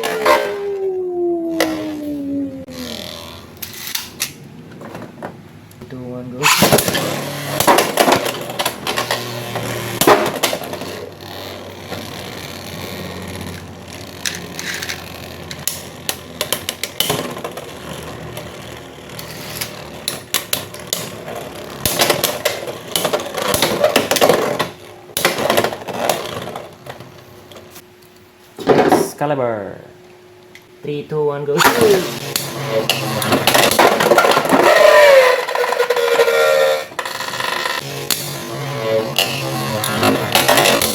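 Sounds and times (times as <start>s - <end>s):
spinning tops whirring: 31.6s - 40.9s.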